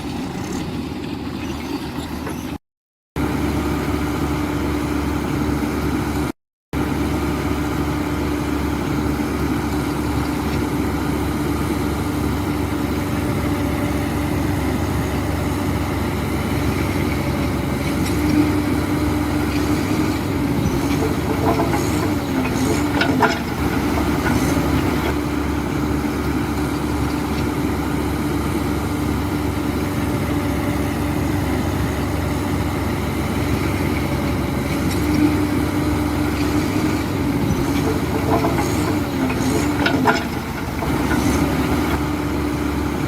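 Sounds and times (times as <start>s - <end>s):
heavy diesel engine droning: 3.2s - 43.0s.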